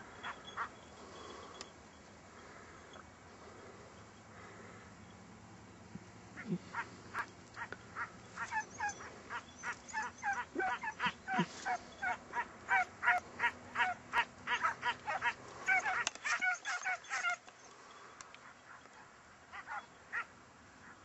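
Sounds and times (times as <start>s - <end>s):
hounds baying: 0.0s - 1.7s, 6.3s - 21.0s.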